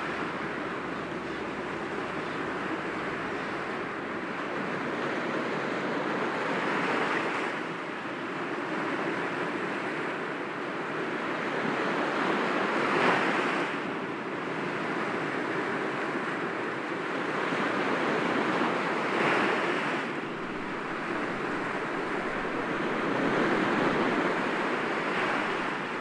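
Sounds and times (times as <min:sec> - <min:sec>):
waves breaking against rocks: 0:00.0 - 0:05.1, 0:18.2 - 0:26.0.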